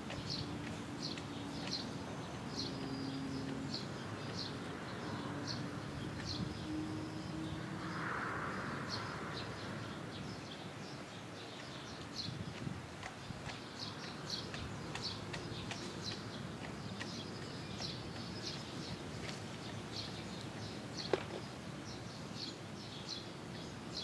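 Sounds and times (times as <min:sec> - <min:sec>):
outdoor background noise: 0:00.0 - 0:24.0
small bird chirping: 0:11.4 - 0:24.0.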